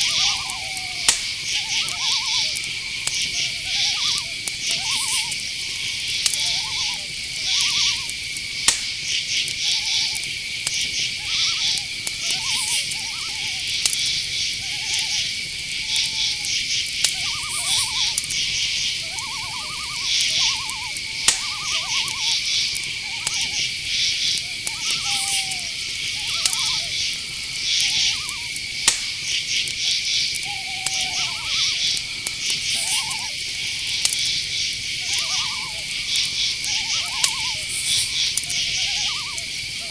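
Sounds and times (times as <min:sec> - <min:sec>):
short mid-pitched animal calls: 0:00.0 - 0:08.2, 0:11.2 - 0:29.3, 0:29.9 - 0:39.9
crickets chirring: 0:00.0 - 0:39.9.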